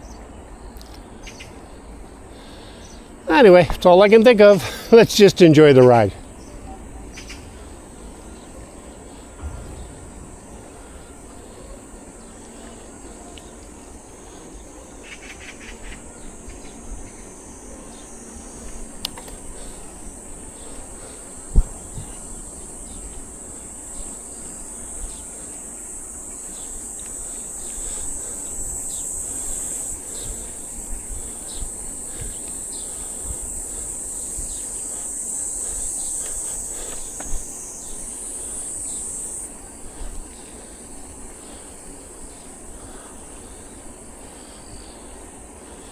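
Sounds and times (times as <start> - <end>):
insects shrilling: 0.0 - 45.9
bicycle wind and tyre rumble: 4.6 - 45.9
sharp knock: 9.4 - 11.5.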